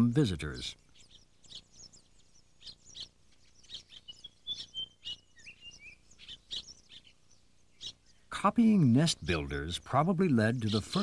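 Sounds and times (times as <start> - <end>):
small birds chirping: 0.0 - 11.0
thin whistled bird notes: 0.7 - 8.3.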